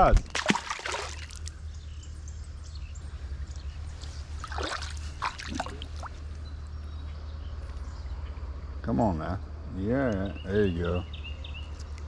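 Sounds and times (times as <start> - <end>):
creek water trickling: 0.2 - 2.1, 3.1 - 6.8.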